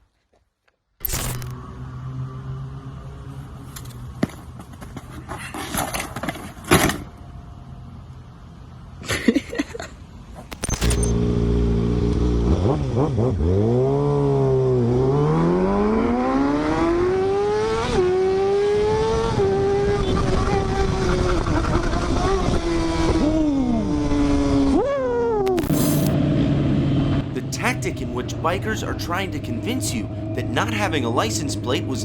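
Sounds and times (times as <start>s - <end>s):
motorcycle engine accelerating: 11.1s - 24.7s.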